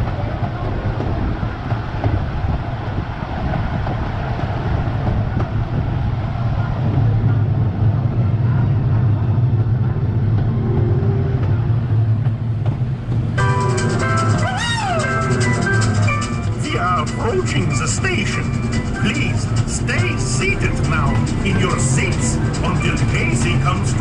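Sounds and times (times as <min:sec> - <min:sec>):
train wheels rumbling on rails: 0:00.0 - 0:24.0
wind noise: 0:00.0 - 0:24.0.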